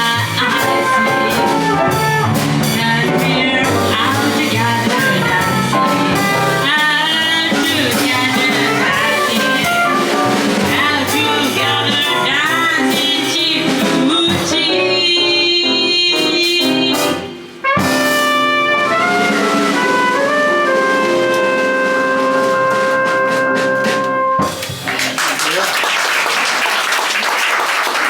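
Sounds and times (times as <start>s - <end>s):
jazz band playing: 0.0s - 25.6s.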